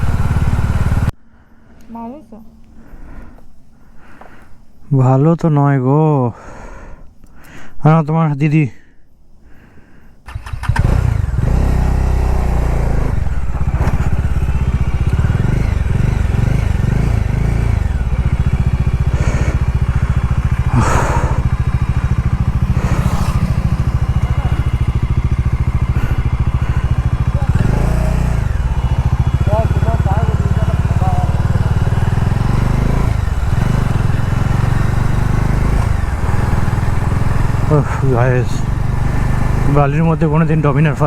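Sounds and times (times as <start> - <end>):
motorcycle engine starting and running: 0.0 - 1.2, 10.2 - 41.0.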